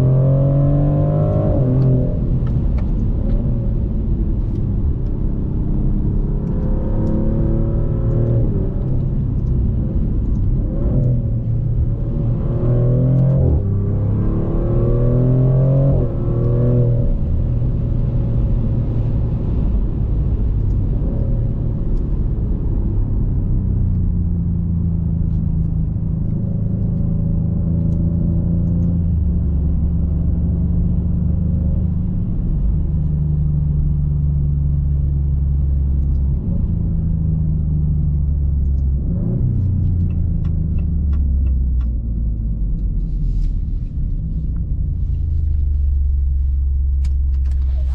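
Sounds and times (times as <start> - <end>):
car engine revving: 0.0 - 31.5.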